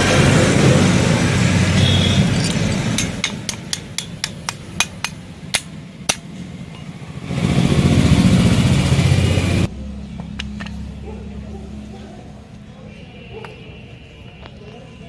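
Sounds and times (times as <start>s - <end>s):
motorcycle engine running: 0.0s - 4.9s, 7.1s - 11.1s.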